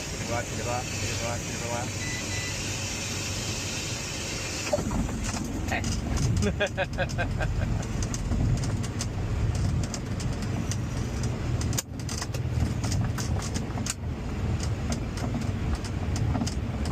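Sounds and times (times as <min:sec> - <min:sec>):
cockpit clicks and rattles: 0:04.9 - 0:16.9.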